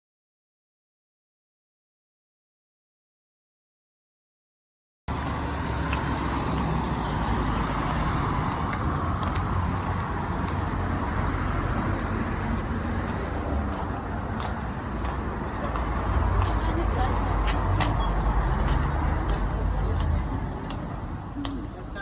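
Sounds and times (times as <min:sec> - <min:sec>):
traffic noise with low rumble: 0:05.1 - 0:22.0.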